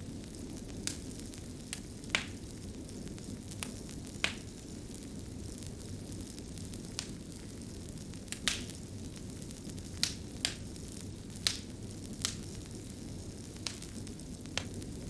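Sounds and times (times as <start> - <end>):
fire crackling and popping: 0.0 - 15.0
low rush of burning: 0.0 - 15.0.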